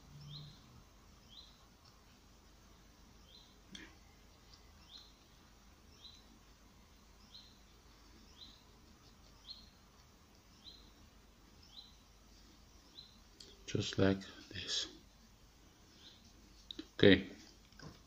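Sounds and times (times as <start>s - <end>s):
bird chirping: 0.0s - 1.7s, 3.0s - 14.8s.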